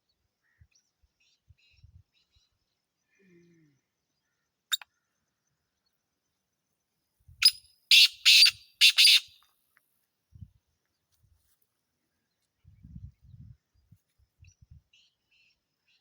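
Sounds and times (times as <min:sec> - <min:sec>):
francolin calling: 0:07.4 - 0:09.4.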